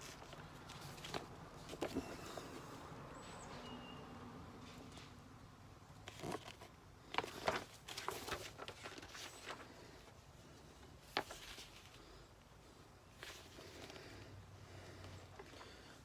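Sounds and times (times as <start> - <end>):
paper rustling: 0.0 - 2.8, 6.0 - 12.3, 13.1 - 14.3.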